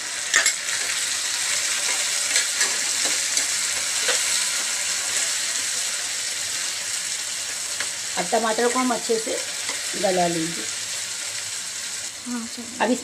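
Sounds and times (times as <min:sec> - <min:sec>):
vegetables sizzling in oil: 0:00.0 - 0:13.0
metal spatula scraping and tapping pan: 0:00.3 - 0:01.0, 0:01.8 - 0:04.4.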